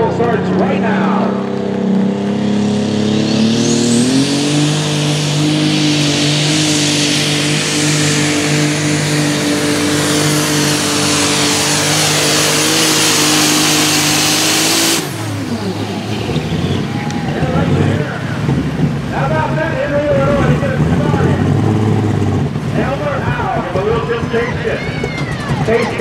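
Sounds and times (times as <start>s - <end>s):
diesel engine revving under load: 0.0s - 26.0s
high turbo whistle: 2.7s - 17.6s.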